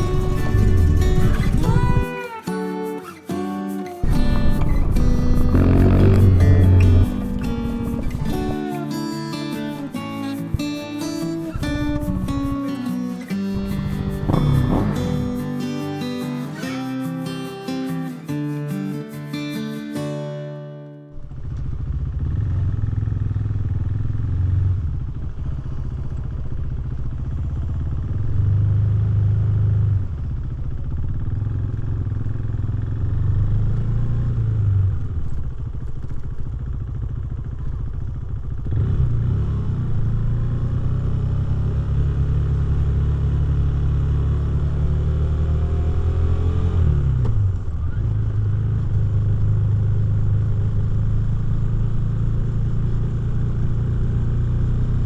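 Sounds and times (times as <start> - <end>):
motorcycle engine revving: 0.0 - 2.1, 4.0 - 8.7, 13.6 - 15.5, 21.2 - 55.0.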